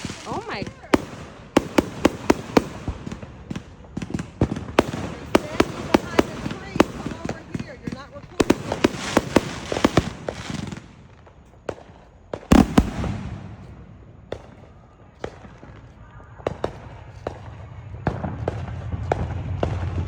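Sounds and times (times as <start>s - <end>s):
fireworks bangs and pops: 0.0s - 20.0s
low rumble: 16.0s - 20.0s.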